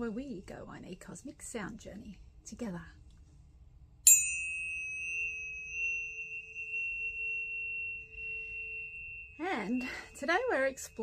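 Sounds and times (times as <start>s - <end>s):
tuning fork ringing: 4.0s - 11.0s.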